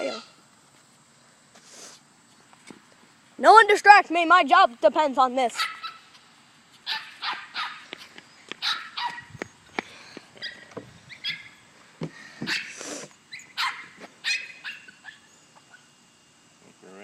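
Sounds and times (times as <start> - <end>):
dog barking and yipping: 5.5 - 6.1, 6.8 - 8.0, 8.6 - 9.4, 10.4 - 11.6, 12.5 - 15.9.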